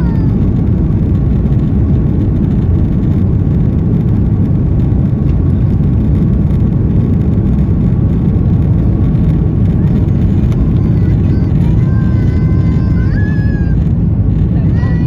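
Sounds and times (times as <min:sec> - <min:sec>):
airplane engines rumbling in cabin: 0:00.0 - 0:15.0
faint steady whine: 0:00.0 - 0:15.0.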